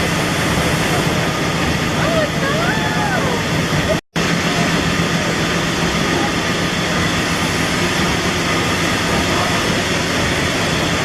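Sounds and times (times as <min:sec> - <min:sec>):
steam engine mechanical din: 0:03.5 - 0:11.0.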